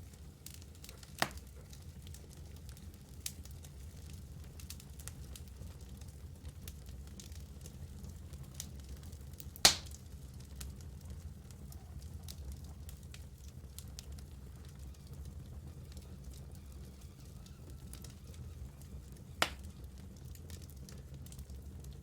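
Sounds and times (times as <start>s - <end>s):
wood fire crackling: 0.0s - 22.0s
sharp fire pops: 1.2s - 1.6s, 9.6s - 10.0s, 19.4s - 19.7s.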